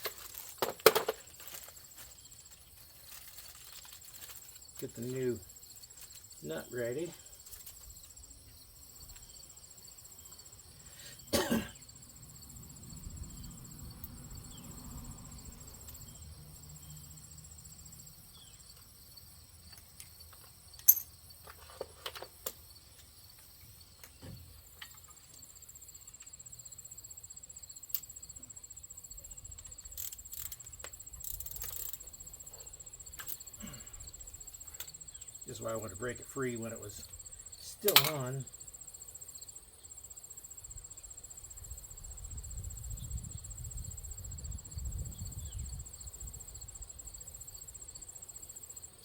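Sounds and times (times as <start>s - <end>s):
crickets chirring: 0.0s - 49.0s
hand tools clicking on metal: 37.8s - 38.3s.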